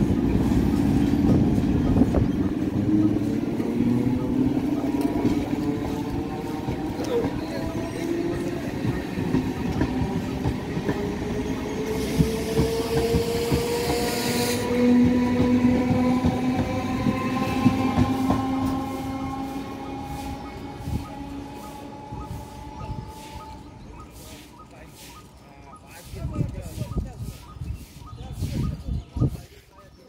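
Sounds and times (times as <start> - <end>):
wheels clattering on rail joints: 0.0 - 22.4.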